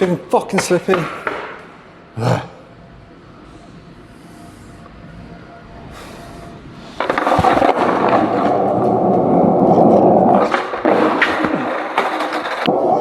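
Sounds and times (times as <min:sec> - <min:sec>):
skateboard wheels rolling on pavement: 0:06.8 - 0:13.0
skateboard clacks: 0:07.0 - 0:13.0.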